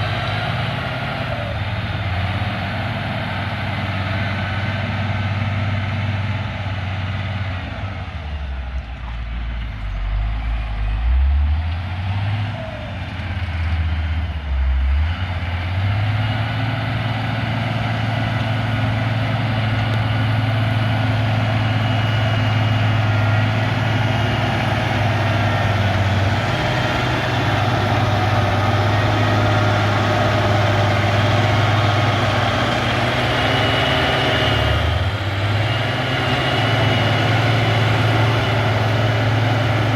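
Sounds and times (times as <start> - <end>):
diesel engine working: 0.0 - 39.9.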